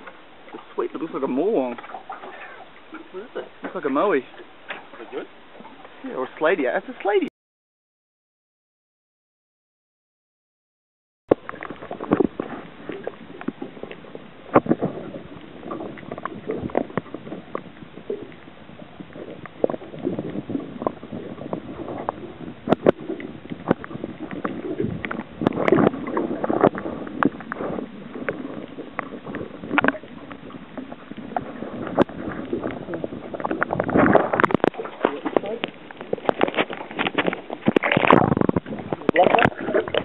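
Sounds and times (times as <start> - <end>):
water sloshing and gurgling: 0.0 - 7.3, 11.3 - 40.0.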